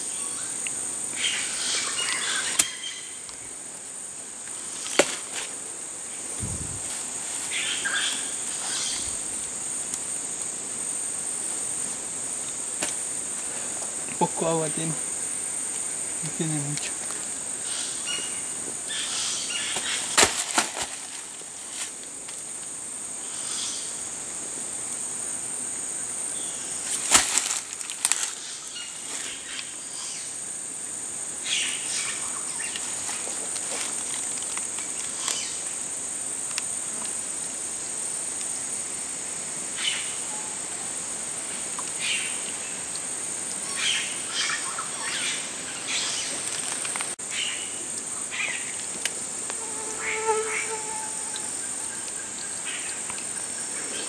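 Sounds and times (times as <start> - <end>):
rainforest insects droning: 0.0 - 54.0
rustles and clicks: 19.7 - 22.5, 26.8 - 29.4, 46.2 - 47.2.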